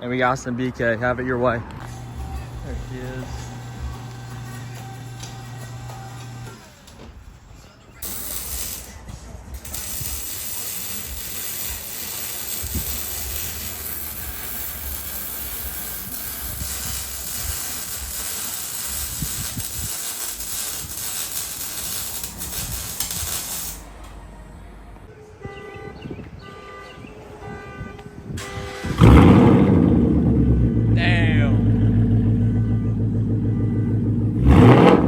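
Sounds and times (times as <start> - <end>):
car engine rumble: 0.0 - 8.2, 11.1 - 18.2, 18.8 - 25.2, 27.5 - 35.0.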